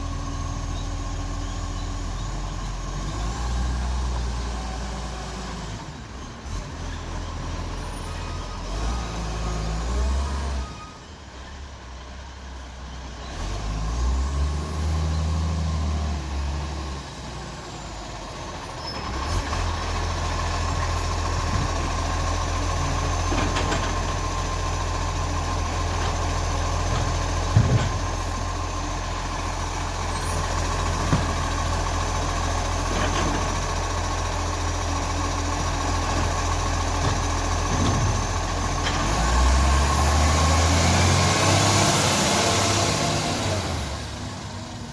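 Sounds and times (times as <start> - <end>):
garbage truck engine running: 14.8 - 44.9.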